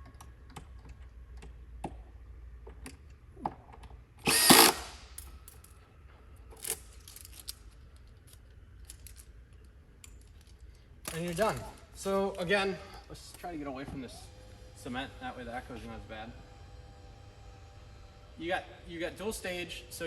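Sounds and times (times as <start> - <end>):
cordless drill driving screws: 4.2 - 5.0.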